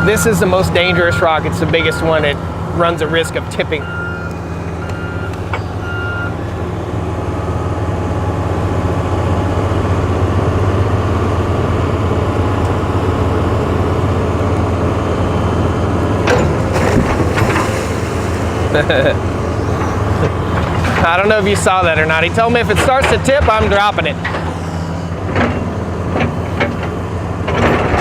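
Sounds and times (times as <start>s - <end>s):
reversing alarm beeps: 0.0s - 6.5s
excavator diesel engine droning: 0.0s - 28.0s
short clatter: 16.2s - 18.6s.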